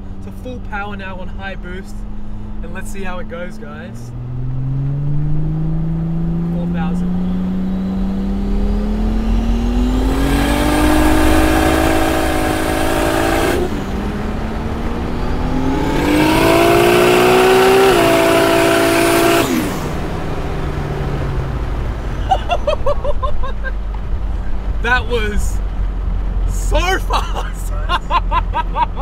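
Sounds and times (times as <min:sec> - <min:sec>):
car engine at full throttle: 0:00.0 - 0:29.0.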